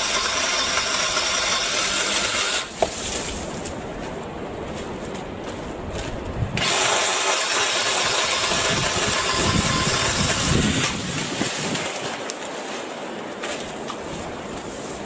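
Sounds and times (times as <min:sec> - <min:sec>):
cordless saw cutting: 0:00.0 - 0:02.7, 0:06.6 - 0:11.1.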